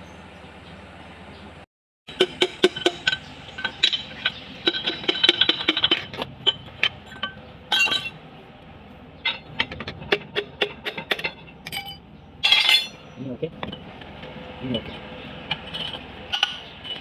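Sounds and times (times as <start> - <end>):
metal tools clinking: 2.1 - 8.2, 9.2 - 13.9, 14.8 - 17.0.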